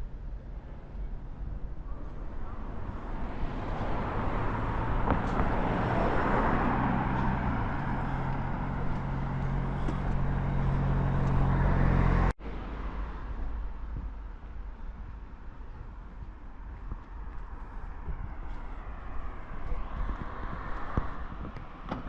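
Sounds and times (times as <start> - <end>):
road noise: 0.0 - 22.0
street background noise: 0.0 - 22.0
vehicle engine running: 0.5 - 12.3.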